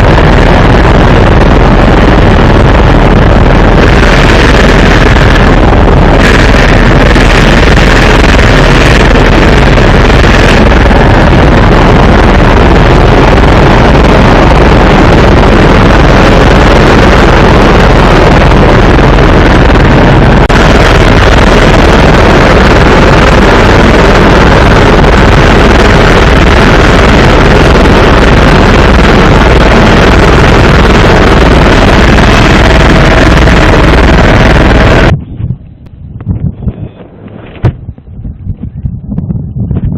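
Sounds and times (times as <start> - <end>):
helicopter engine and rotor: 0.0 - 35.2.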